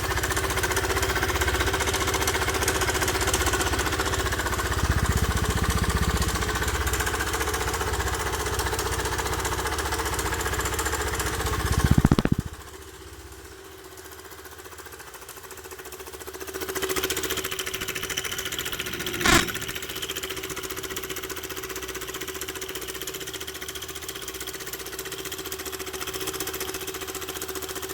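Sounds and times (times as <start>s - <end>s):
scooter engine rattling: 0.0s - 20.1s
sharp click: 11.9s - 12.5s, 17.8s - 19.8s.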